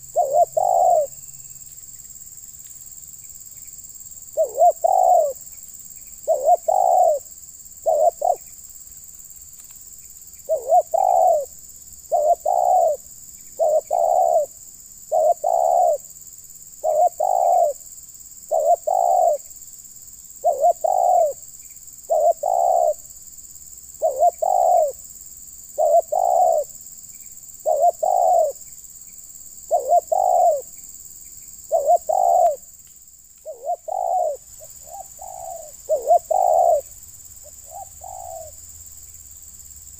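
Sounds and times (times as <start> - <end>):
dove cooing: 0.0 - 1.2, 4.4 - 5.4, 6.2 - 8.5, 10.5 - 16.1, 16.8 - 17.8, 18.5 - 19.4, 20.4 - 21.4, 22.1 - 23.0, 24.0 - 25.0, 25.8 - 26.8, 27.6 - 28.6, 29.7 - 30.7, 31.7 - 32.7, 33.4 - 38.6.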